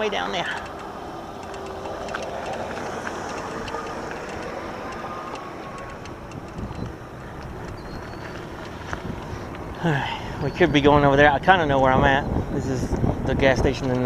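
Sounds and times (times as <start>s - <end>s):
bike clicks and rattles: 0.0s - 9.8s, 13.4s - 14.0s
tyres rumbling on rough ground: 0.0s - 14.0s
wind: 0.0s - 14.0s.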